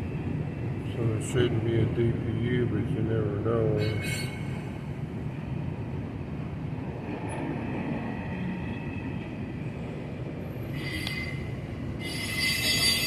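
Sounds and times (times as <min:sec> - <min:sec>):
train wheels rumbling on rails: 0:00.0 - 0:13.0
high-pitched wheel squeal: 0:03.8 - 0:04.6, 0:10.6 - 0:13.0.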